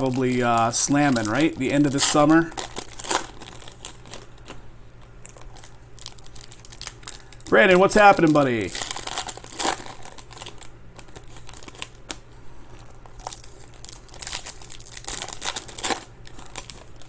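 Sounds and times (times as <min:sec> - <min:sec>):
card pack wrappers crinkling: 0:00.0 - 0:17.0.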